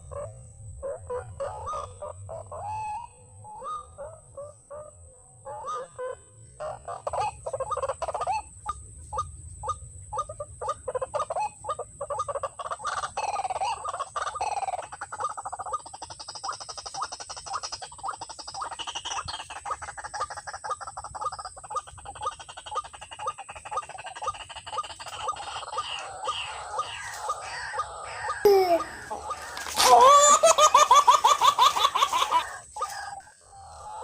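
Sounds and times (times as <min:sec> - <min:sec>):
waterhen calling harsh notes: 0:25.9 - 0:33.2.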